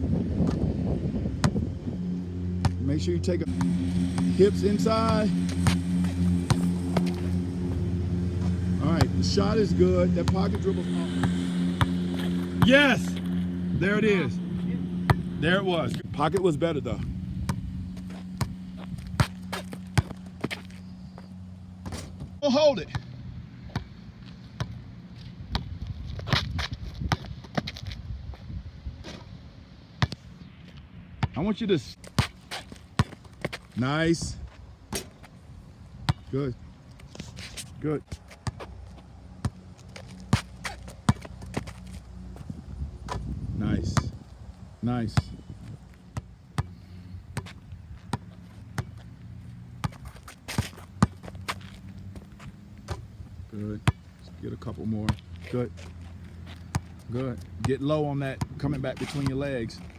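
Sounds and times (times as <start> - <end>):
low steady hum: 0.0 - 22.4
noisy scrape: 1.7 - 16.1
basketball bouncing on court: 2.6 - 2.9, 3.5 - 7.7, 10.3 - 13.7, 17.5 - 20.7, 46.2 - 46.7, 47.4 - 49.0, 49.8 - 53.1, 56.6 - 58.6.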